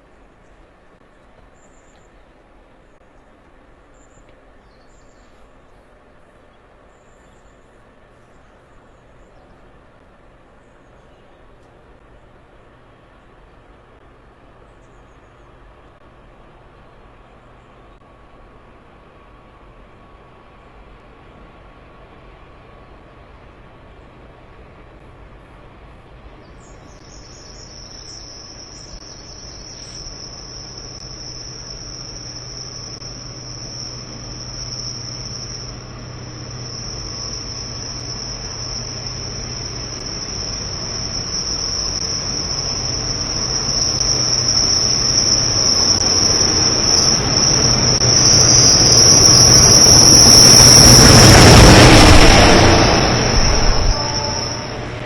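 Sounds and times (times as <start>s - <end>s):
diesel engine hum: 7.6s - 55.0s
high wheel squeal: 27.1s - 55.0s.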